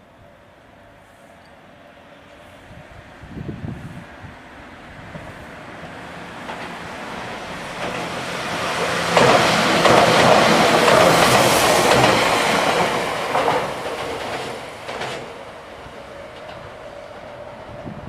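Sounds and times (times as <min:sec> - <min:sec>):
electric train passing: 0:00.0 - 0:18.0
train wheel clacks: 0:06.4 - 0:15.4.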